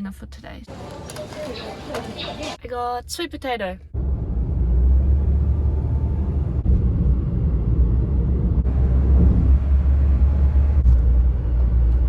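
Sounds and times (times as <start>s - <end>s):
car road and engine rumble: 3.8s - 12.0s.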